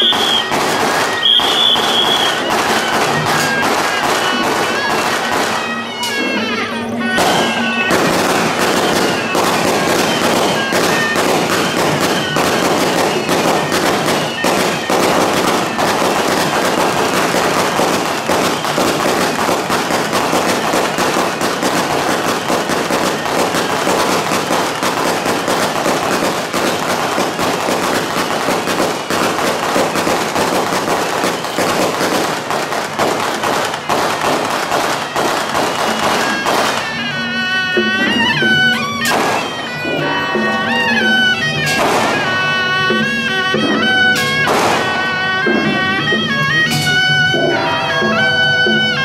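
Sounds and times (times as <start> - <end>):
firecrackers crackling: 0.0 - 49.0
wind instrument melody: 0.0 - 49.0.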